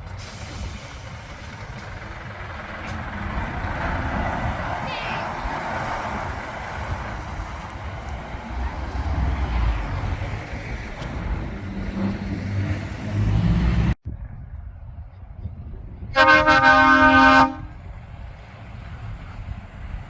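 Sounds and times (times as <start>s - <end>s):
traffic noise: 0.0s - 20.0s
truck engine rumbling: 0.0s - 20.0s
truck air horn blast: 16.2s - 17.8s.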